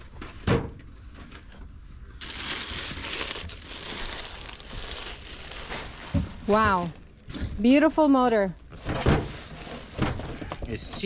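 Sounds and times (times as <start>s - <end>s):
packaging crinkling and rustling: 2.2s - 7.5s, 8.7s - 10.8s.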